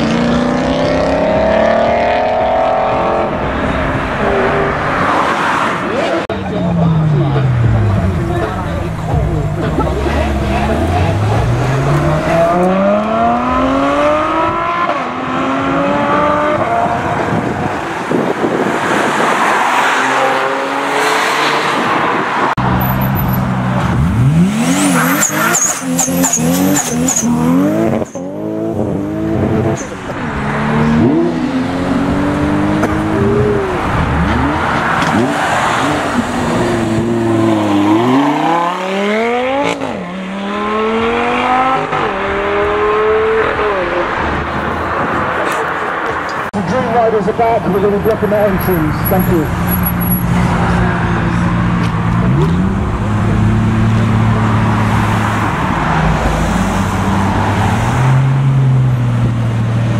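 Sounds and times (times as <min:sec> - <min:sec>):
car engines revving hard: 0:00.0 - 0:59.9.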